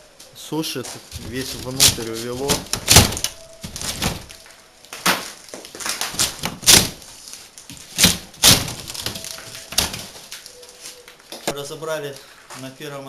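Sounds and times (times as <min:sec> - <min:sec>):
masonry knocks and clatters: 0:01.1 - 0:07.0, 0:07.7 - 0:10.2.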